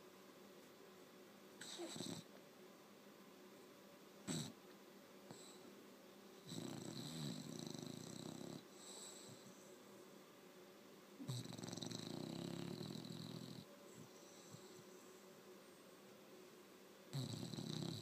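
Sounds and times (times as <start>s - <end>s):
dog snoring: 1.6s - 2.3s, 4.2s - 4.6s, 5.3s - 5.7s, 6.4s - 9.7s, 11.2s - 14.9s, 17.1s - 18.0s.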